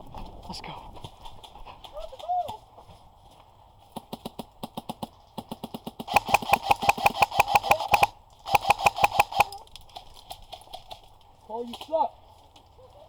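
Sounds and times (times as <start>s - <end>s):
airsoft gun full-auto bursts: 5.4s - 9.7s
evenly spaced clicks: 6.0s - 11.1s
gearbox motor whining: 6.1s - 9.6s.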